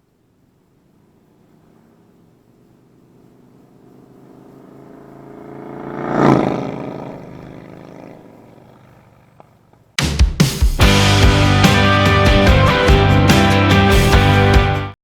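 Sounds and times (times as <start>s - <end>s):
motorcycle passing by: 0.0s - 10.0s.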